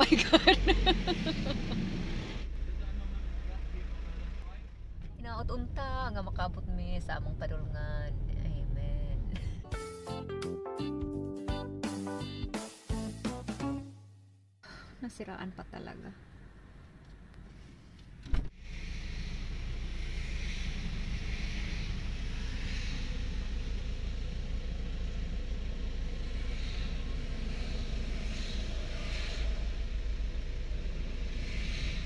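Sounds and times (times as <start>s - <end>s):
car engine idling: 0.0s - 9.6s, 18.6s - 32.0s.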